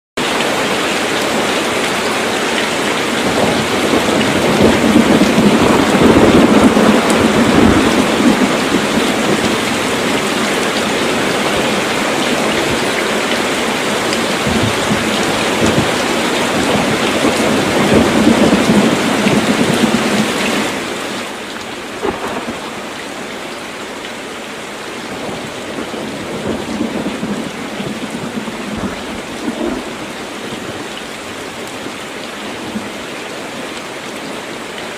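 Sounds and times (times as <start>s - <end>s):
heavy rain falling: 0.2s - 34.9s
rolling thunder: 3.1s - 13.0s, 13.7s - 20.4s, 22.0s - 23.3s, 25.1s - 30.8s.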